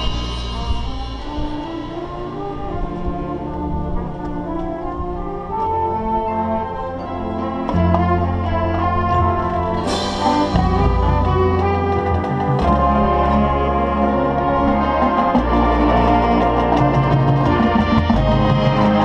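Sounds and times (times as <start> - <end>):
cymbal crash: 0.0 - 3.6, 9.8 - 12.0
brass band chords: 0.0 - 19.0.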